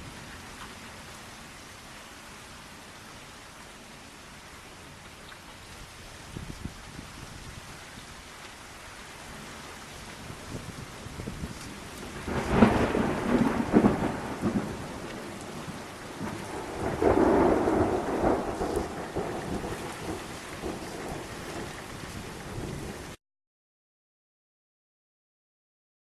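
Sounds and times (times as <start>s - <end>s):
steady rain: 0.0s - 23.2s
thunder rumbling: 10.2s - 23.2s.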